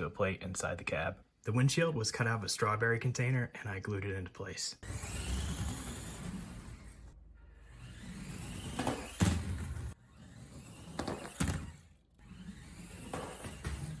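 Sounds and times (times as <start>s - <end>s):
small electric motor whining: 4.8s - 14.0s
toy truck thump: 8.3s - 10.0s, 10.8s - 11.8s, 12.5s - 14.0s.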